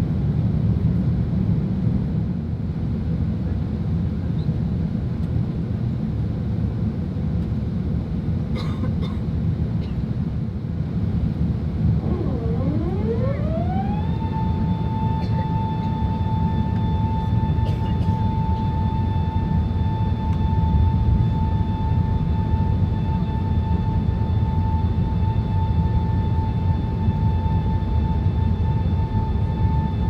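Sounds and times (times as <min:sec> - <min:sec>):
aircraft low rumble: 0:00.0 - 0:30.0
rising whine: 0:11.8 - 0:30.0.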